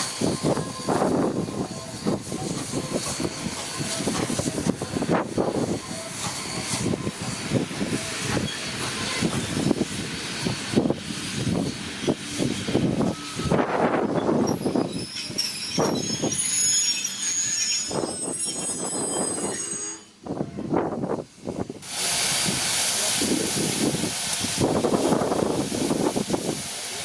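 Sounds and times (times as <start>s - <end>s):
steam hissing: 0.0s - 18.1s, 21.8s - 27.0s
steam train chugging: 0.0s - 20.0s, 21.8s - 27.0s
train wheels squealing: 5.4s - 20.2s.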